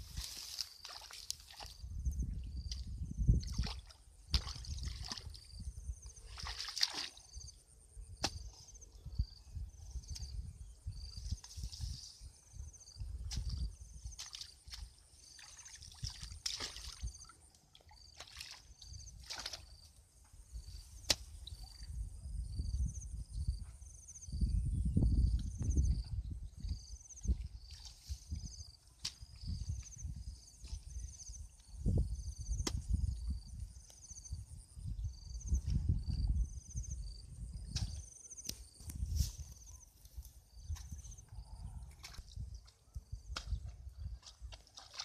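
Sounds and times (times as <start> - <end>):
shallow water sloshing and splashing: 3.4 - 7.4, 13.4 - 19.9, 43.6 - 45.0.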